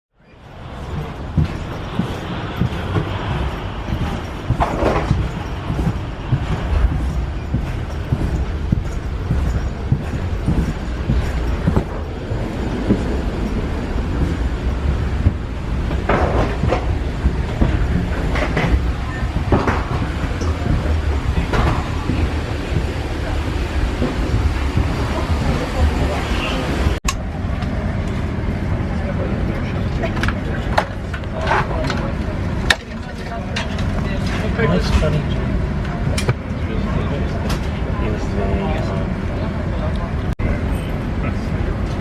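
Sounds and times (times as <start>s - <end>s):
knocks and rattles: 0.4s - 27.1s.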